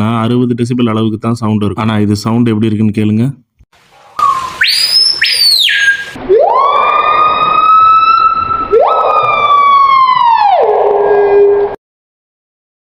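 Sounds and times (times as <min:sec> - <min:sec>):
bird calling with ringing whistles: 0:04.2 - 0:06.2.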